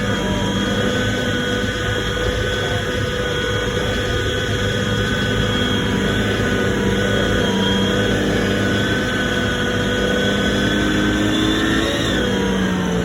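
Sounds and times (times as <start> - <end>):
tank engine running: 0.0 - 13.0.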